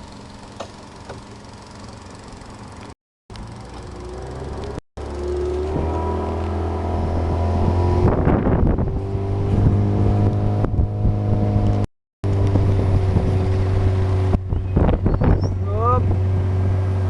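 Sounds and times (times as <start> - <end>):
motorboat engine running: 0.0 - 17.0
wind on microphone: 7.0 - 16.8.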